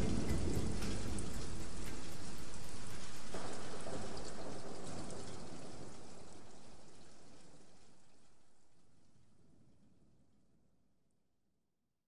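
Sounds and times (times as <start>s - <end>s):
rain drop ticks: 0.0s - 8.6s
rain falling: 0.0s - 9.4s.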